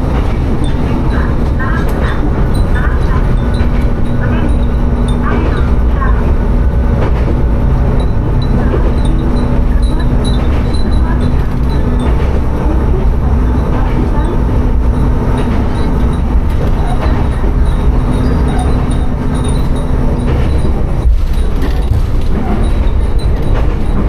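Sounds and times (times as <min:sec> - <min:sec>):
diesel railcar engine drone: 0:00.0 - 0:24.0
wheels rumbling on rail: 0:00.0 - 0:24.0
glass wind chimes ringing: 0:15.0 - 0:21.9.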